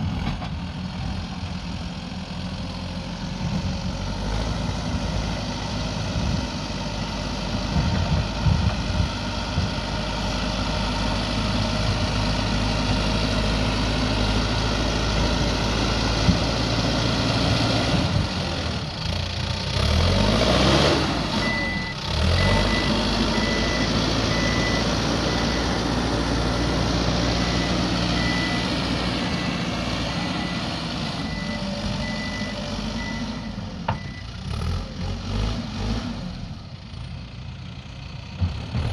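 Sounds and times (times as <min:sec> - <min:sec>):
diesel engine running: 0:00.0 - 0:38.9
reversing alarm beeps: 0:21.4 - 0:26.0, 0:27.3 - 0:34.3.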